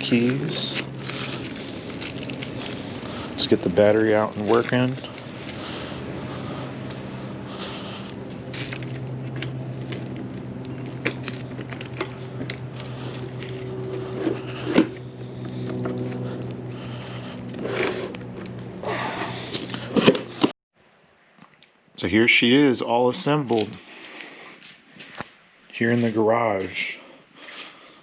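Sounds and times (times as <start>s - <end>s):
steady low hum: 0.0s - 20.5s.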